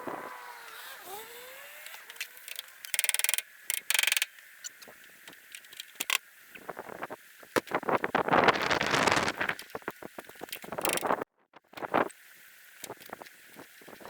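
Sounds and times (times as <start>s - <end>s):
power tool buzzing: 0.0s - 4.3s.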